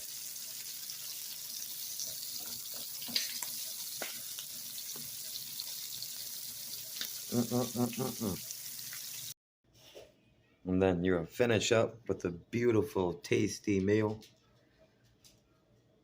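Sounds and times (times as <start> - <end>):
food deep-frying in oil: 0.0 - 9.4.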